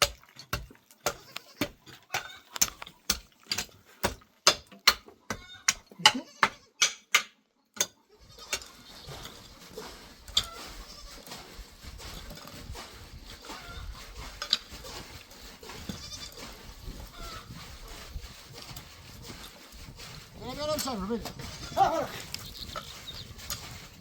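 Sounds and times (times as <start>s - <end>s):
outdoor background noise: 0.0s - 24.0s
goats bleating: 5.4s - 6.8s, 8.1s - 9.1s, 10.5s - 11.2s, 15.8s - 16.4s, 21.4s - 22.2s.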